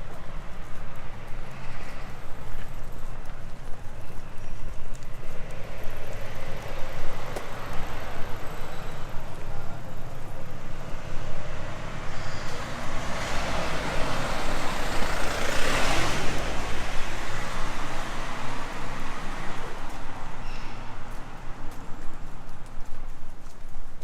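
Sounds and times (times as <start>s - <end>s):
vehicle driving past: 11.4s - 19.5s.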